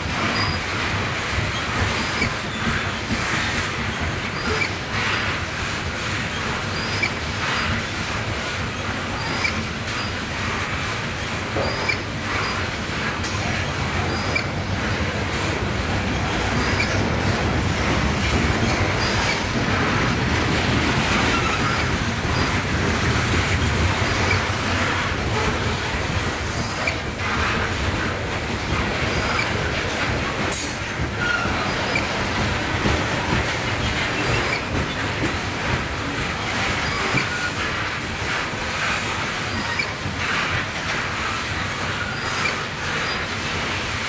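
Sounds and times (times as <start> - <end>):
train wheels rumbling and rattling: 0.0 - 44.0
high wheel squeals: 0.3 - 0.7, 21.3 - 22.5, 31.1 - 32.0.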